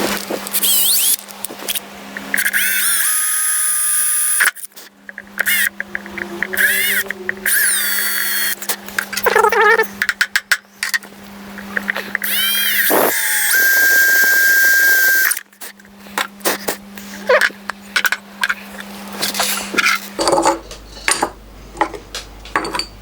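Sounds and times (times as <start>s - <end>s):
electric drill motor whine: 0.1s - 4.7s, 5.4s - 8.6s, 12.1s - 15.5s.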